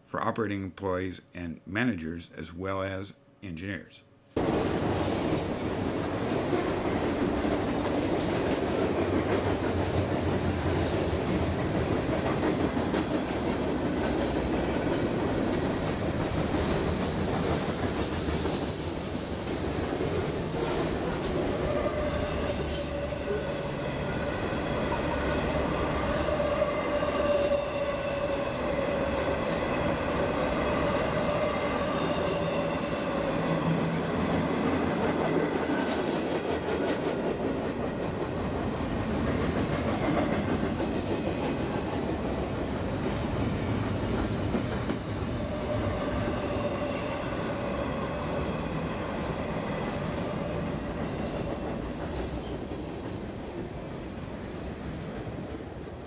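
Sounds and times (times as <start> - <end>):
freight train wheels rumbling: 4.4 - 56.0.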